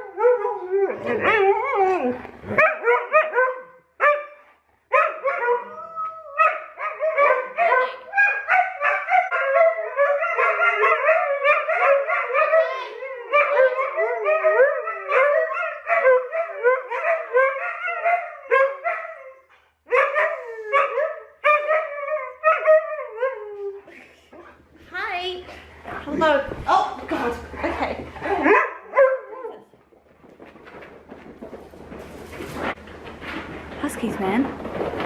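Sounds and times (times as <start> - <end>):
huskies howling and yipping: 0.0 - 3.6, 5.0 - 23.9.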